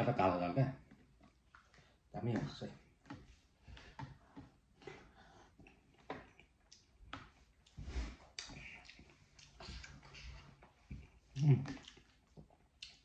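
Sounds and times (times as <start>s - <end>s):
wet chewing clicks and smacks: 0.8s - 3.2s, 3.8s - 13.0s.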